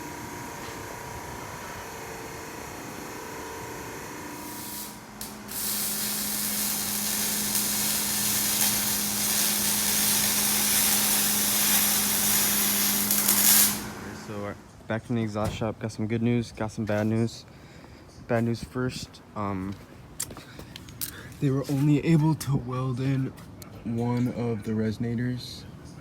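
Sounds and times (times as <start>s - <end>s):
shop tool hissing: 0.0s - 14.5s
low shop hum: 0.0s - 26.0s.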